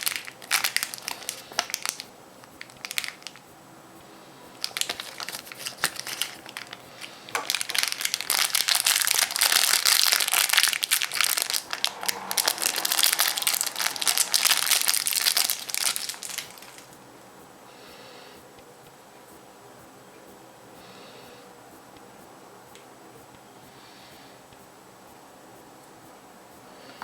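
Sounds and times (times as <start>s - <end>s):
wrapper crinkling: 0.0s - 3.4s, 4.5s - 16.9s.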